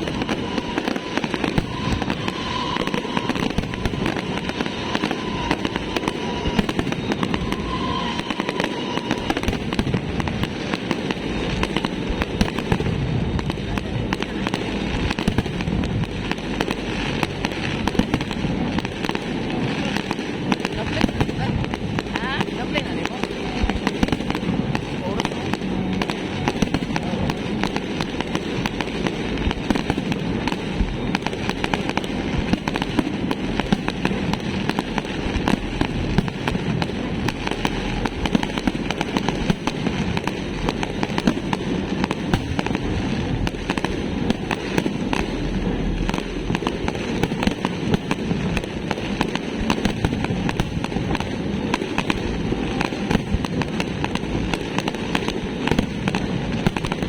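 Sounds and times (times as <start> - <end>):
fireworks crackling and banging: 0.0 - 57.0.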